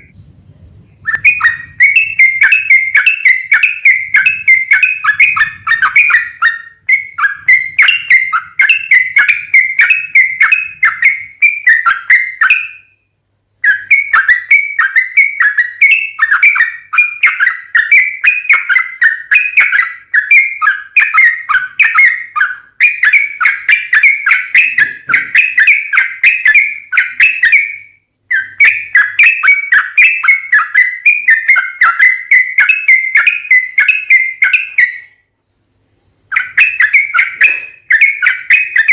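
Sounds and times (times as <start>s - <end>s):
bulbul singing bubbly chatter: 1.0s - 12.8s.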